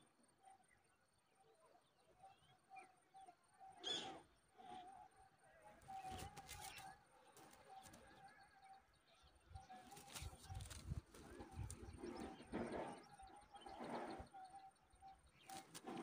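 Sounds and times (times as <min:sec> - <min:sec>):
rustles and taps of twigs: 0:05.8 - 0:08.3, 0:09.7 - 0:12.3, 0:15.4 - 0:16.0.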